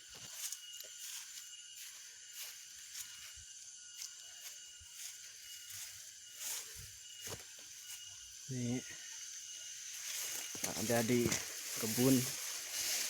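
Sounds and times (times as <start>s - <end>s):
thin steady tones: 0.0s - 13.0s
steady high hiss: 6.4s - 13.0s.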